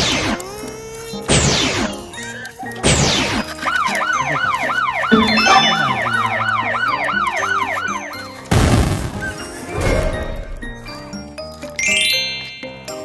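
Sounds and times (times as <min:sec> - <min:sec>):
background music: 0:00.0 - 0:13.0
siren wailing: 0:03.4 - 0:08.5.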